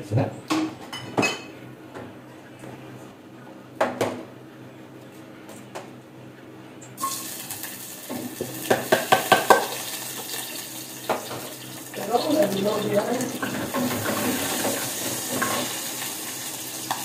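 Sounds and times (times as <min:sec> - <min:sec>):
food sizzling in hot oil: 0:07.0 - 0:17.0
wooden spatula knocking on pot: 0:08.7 - 0:09.7.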